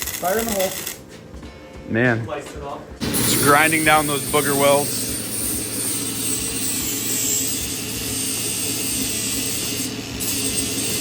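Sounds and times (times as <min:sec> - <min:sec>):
grinder grinding steel: 0:03.0 - 0:11.0.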